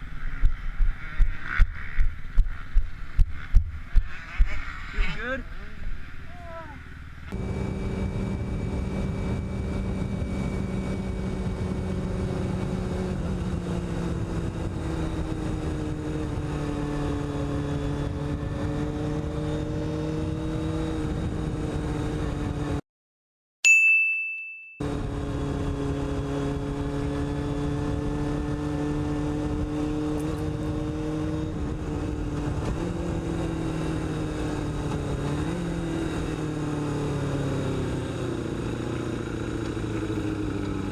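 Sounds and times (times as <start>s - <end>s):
motorcycle engine running: 0.0s - 22.8s, 24.8s - 40.9s
sharp ding: 23.7s - 24.8s.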